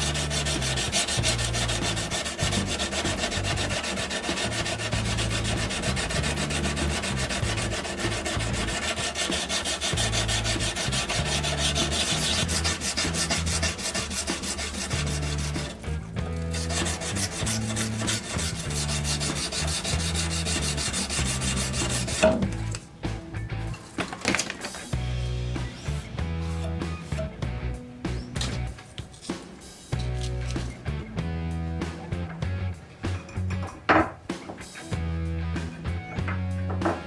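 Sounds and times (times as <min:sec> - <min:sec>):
abrasive rubbing on surface: 0:00.0 - 0:22.7.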